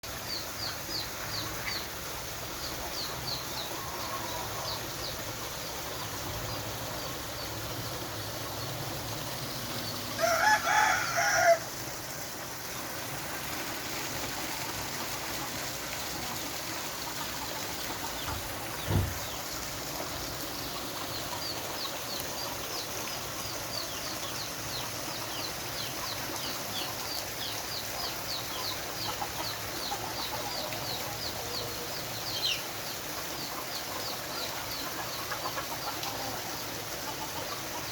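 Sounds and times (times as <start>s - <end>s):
rainwater pouring: 2.1s - 25.0s
chicken calling: 10.0s - 11.6s
dull thump: 18.8s - 19.2s.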